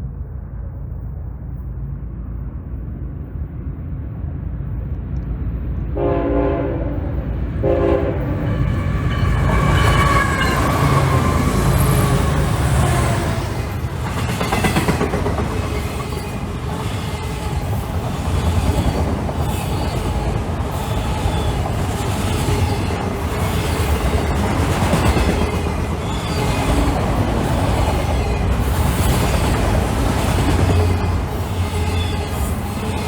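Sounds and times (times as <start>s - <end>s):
freight train cars rolling past: 0.0s - 33.0s
steel wheels clattering over rails: 8.5s - 33.0s.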